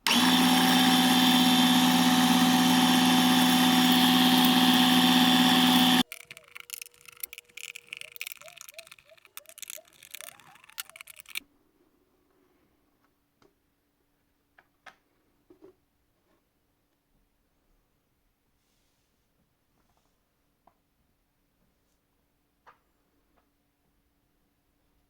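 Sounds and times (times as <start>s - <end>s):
air compressor running: 0.0s - 6.0s.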